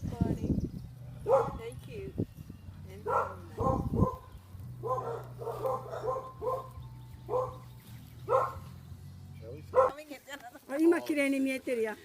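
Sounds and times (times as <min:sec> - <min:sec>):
dog barking: 0:01.2 - 0:01.6, 0:03.0 - 0:08.8, 0:09.7 - 0:10.0.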